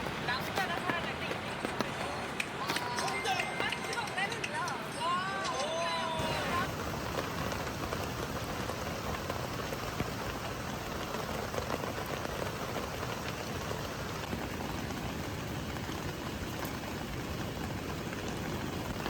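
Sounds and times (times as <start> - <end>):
raindrop taps: 0.0 - 4.8, 6.2 - 19.0
rain hissing: 6.2 - 19.0.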